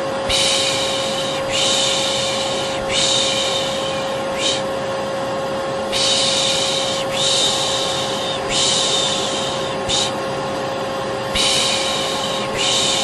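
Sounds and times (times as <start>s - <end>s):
vacuum cleaner running: 0.0s - 13.0s
person shushing: 0.3s - 4.7s, 5.9s - 10.2s, 11.3s - 13.0s.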